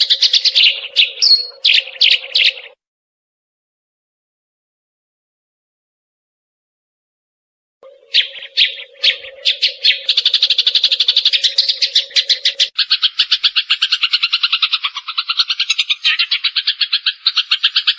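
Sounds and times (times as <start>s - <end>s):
sparrow chirping rapidly: 0.0s - 2.8s, 7.9s - 17.9s.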